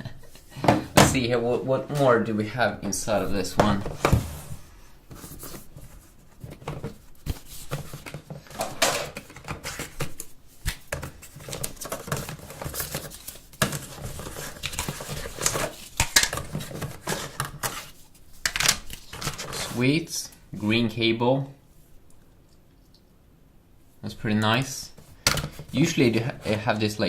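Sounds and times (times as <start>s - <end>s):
cardboard and plastic rustling: 2.9s - 20.0s.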